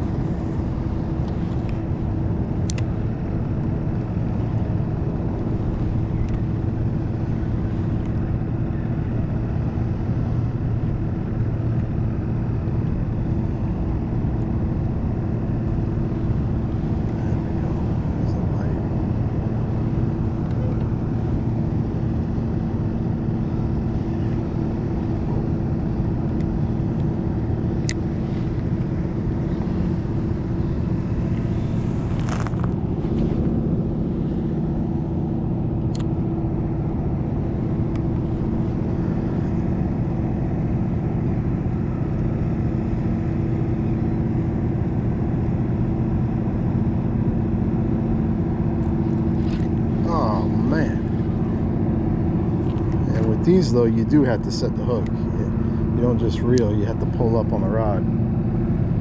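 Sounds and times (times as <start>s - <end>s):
faint sharp clicks: 2.6s - 2.9s.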